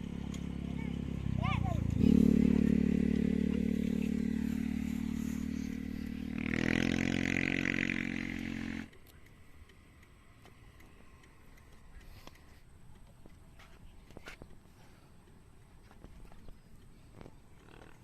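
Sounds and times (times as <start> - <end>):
motorcycle engine revving: 0.0 - 9.0, 17.6 - 18.0
faint background noise: 0.0 - 18.0.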